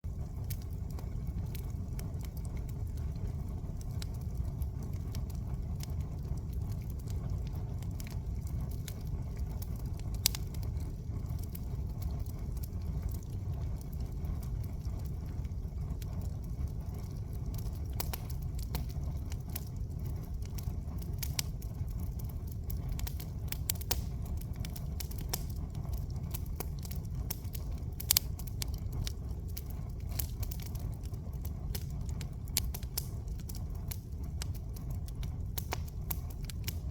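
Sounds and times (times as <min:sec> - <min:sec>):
bonfire crackling and popping: 0:00.0 - 0:36.9
low fire rumble: 0:00.0 - 0:36.9
sharp fire pops: 0:22.3 - 0:36.9.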